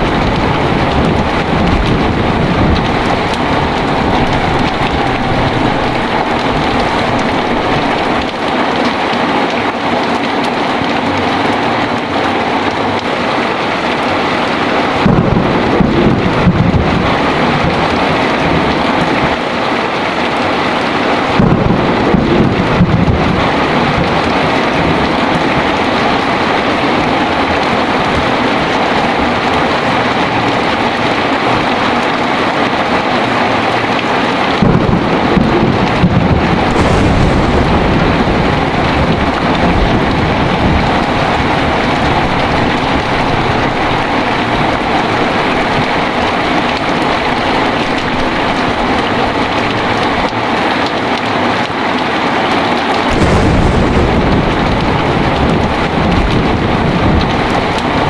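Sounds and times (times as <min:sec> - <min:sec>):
thunder rumbling: 0:00.0 - 0:11.6, 0:12.4 - 0:51.2, 0:52.8 - 0:58.0
heavy rain pouring: 0:00.0 - 0:58.0.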